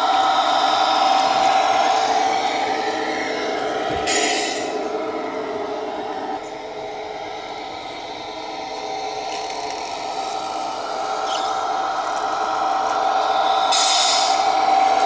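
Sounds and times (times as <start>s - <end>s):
model truck motor whine: 0.0s - 15.0s.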